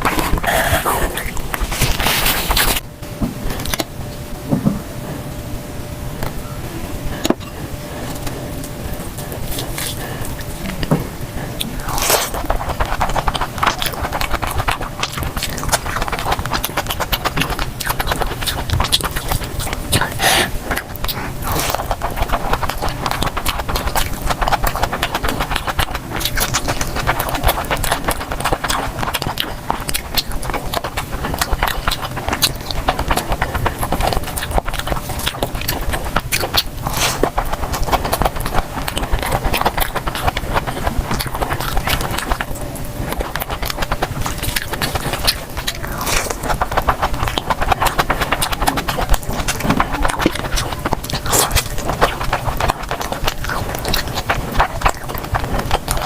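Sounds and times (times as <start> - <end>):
chewing and wet mouth noises: 0.0 - 2.8, 3.5 - 3.9, 7.1 - 56.0.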